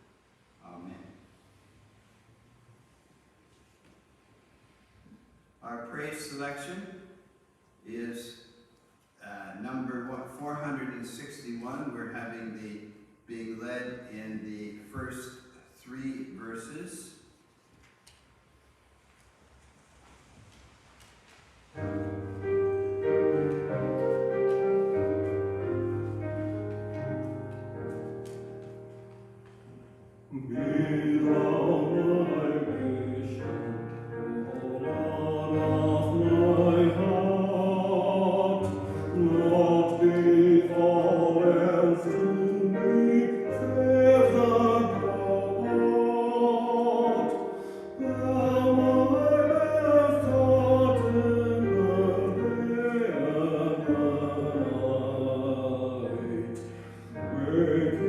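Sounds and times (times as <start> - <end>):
keyboard chords: 21.8 - 55.2
group singing a hymn: 30.3 - 56.6.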